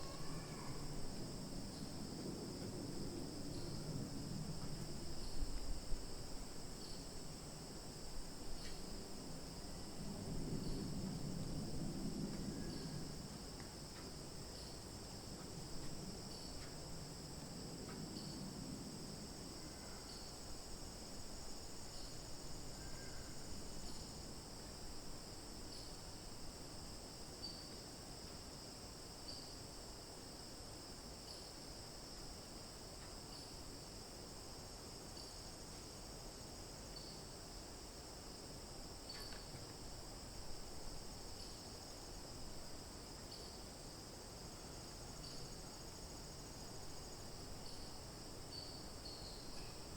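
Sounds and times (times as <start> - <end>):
chorus of crickets: 0.0 - 49.9.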